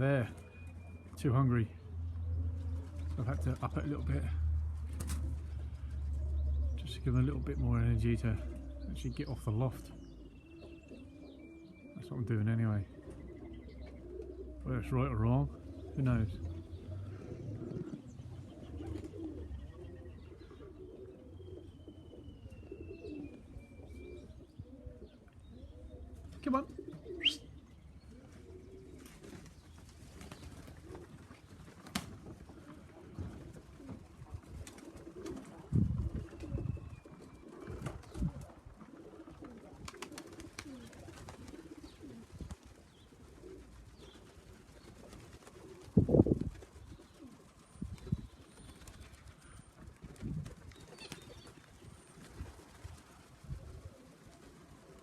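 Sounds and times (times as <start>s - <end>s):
pigeons cooing: 0.0s - 55.0s.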